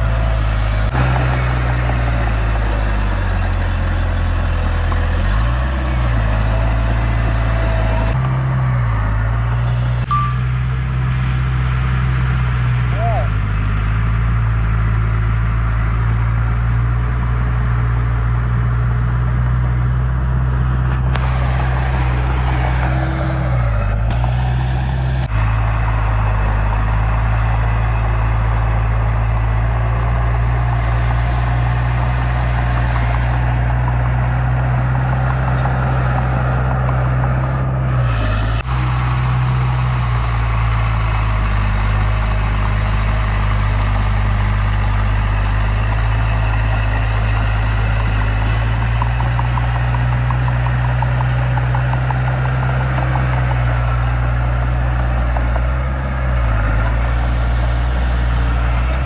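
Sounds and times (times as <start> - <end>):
heavy machinery diesel engine running: 0.0 - 59.0.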